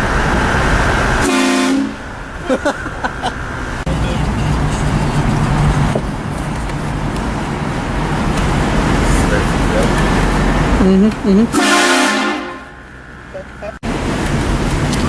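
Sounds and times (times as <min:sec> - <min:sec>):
traffic rumble: 0:00.0 - 0:15.0
train horn blast: 0:01.2 - 0:02.1, 0:11.5 - 0:12.9
vehicle engine rumble: 0:02.0 - 0:11.7, 0:12.4 - 0:15.0.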